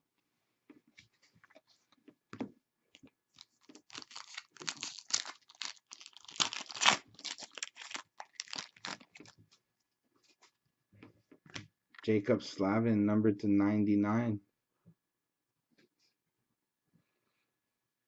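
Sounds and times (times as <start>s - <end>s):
card packaging crinkling and tearing: 3.4s - 9.4s.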